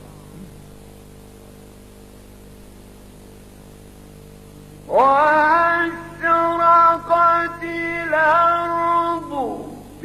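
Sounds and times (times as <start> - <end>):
constant hiss: 0.0 - 10.0
electrical mains hum: 0.0 - 10.0.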